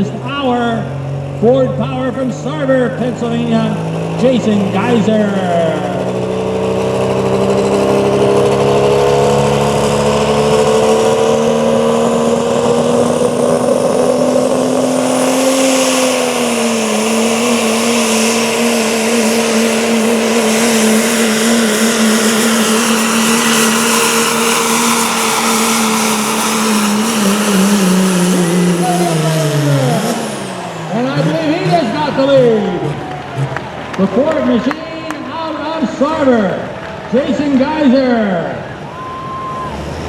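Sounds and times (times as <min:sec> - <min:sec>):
truck engine at high revs: 0:00.0 - 0:40.0.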